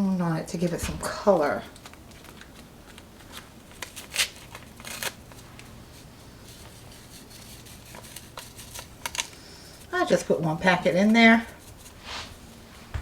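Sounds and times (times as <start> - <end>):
seasoning packet crinkling: 1.8 - 5.4.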